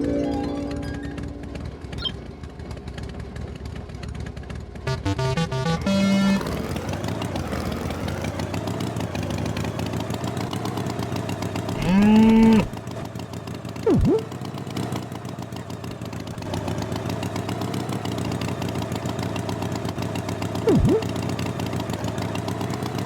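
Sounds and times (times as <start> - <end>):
tractor engine running: 0.0 - 23.0
swooping sound effect: 4.9 - 6.9, 13.9 - 14.3, 20.7 - 21.1
cow mooing: 11.8 - 12.7.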